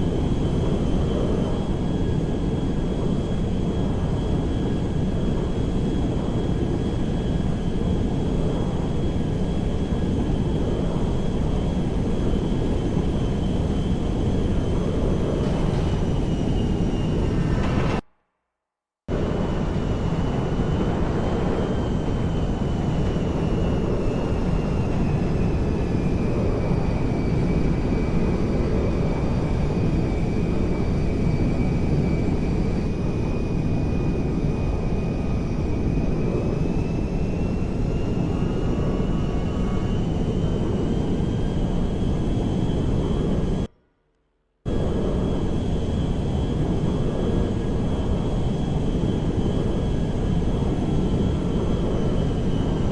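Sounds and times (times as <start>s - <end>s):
airplane engine whining: 0.0s - 18.1s, 19.1s - 43.7s, 44.7s - 52.9s.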